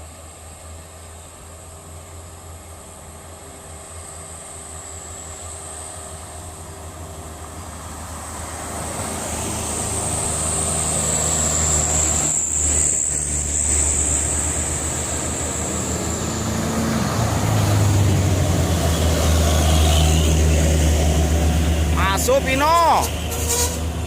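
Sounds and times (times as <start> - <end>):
truck engine under load: 5.5 - 24.0.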